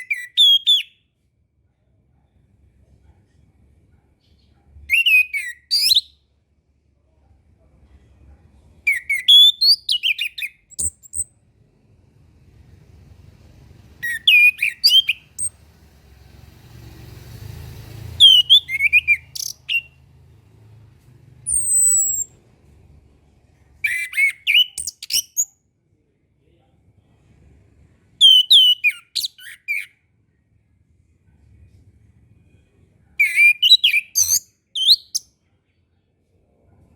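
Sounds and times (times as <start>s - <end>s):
thrush singing whistled notes: 14.0s - 15.5s, 18.1s - 20.0s, 21.5s - 22.3s, 28.2s - 29.9s
soft rushing noise: 15.4s - 21.5s.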